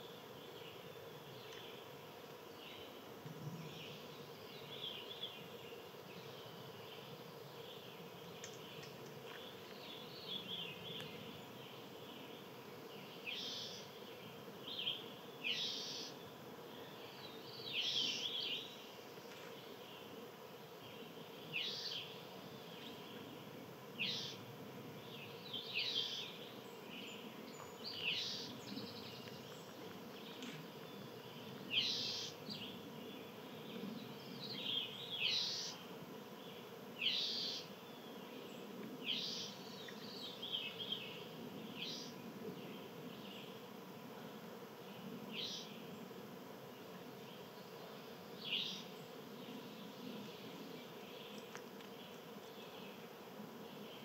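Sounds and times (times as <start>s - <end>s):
songbirds chirping sharply: 24.0s - 43.8s.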